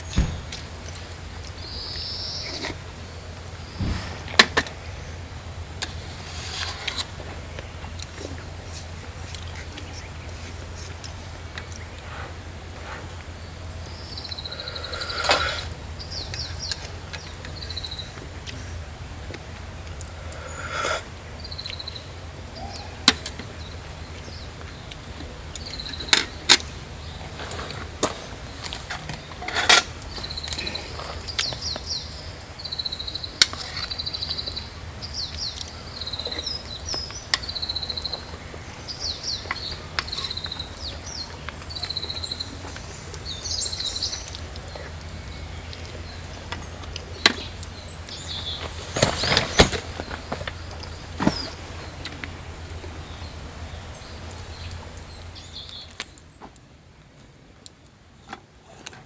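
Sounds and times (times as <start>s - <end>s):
sharp clicks and knocks: 0.0s - 1.2s
small birds chirping and trilling: 0.0s - 5.2s, 7.6s - 12.3s, 13.3s - 18.8s, 20.0s - 56.4s.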